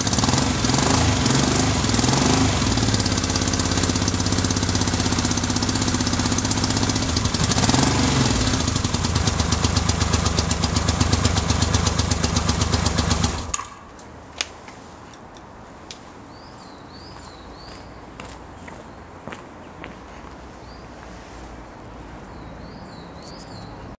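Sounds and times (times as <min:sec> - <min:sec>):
motorcycle engine running rough: 0:00.0 - 0:13.6.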